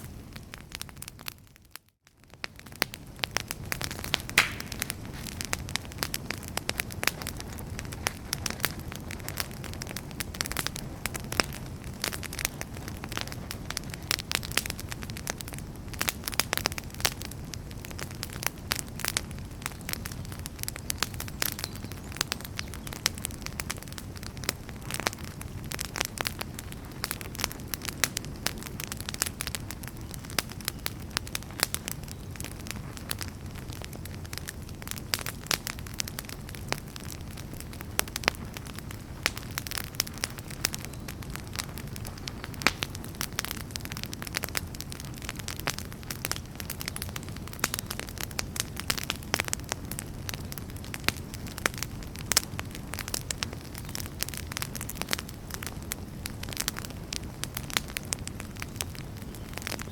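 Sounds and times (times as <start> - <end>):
burning logs crackling and popping: 0.0 - 59.9
low rumble of flames: 0.0 - 59.9.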